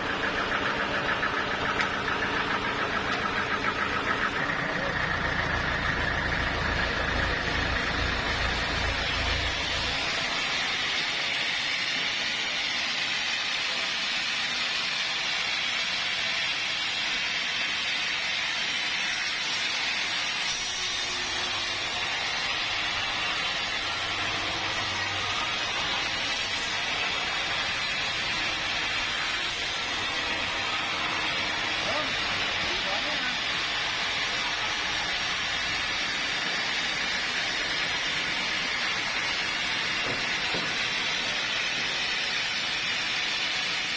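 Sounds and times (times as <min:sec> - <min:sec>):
low engine rumble: 0:00.0 - 0:12.8
steady mechanical hiss: 0:00.0 - 0:43.9.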